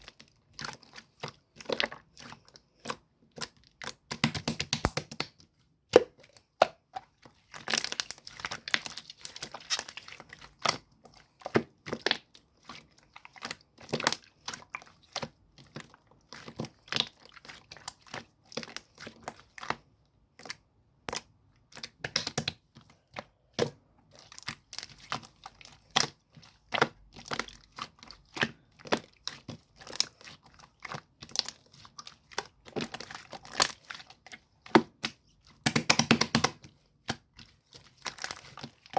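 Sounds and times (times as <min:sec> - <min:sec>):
slime crackling: 0:06.1 - 0:19.7, 0:24.1 - 0:38.9.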